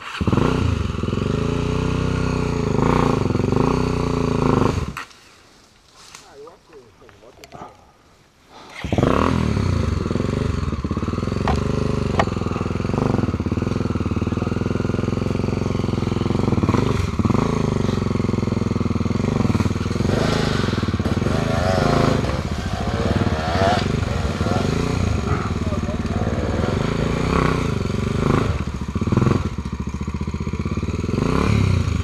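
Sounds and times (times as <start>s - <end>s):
motorcycle engine revving: 0.0s - 5.0s, 8.7s - 32.0s.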